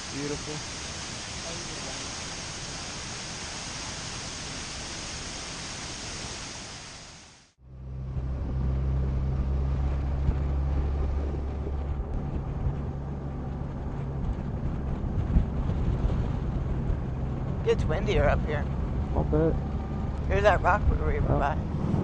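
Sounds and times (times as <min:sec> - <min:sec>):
waterfall rushing: 0:00.0 - 0:07.4
motorcycle engine droning: 0:07.6 - 0:21.9
wind noise: 0:07.9 - 0:22.0.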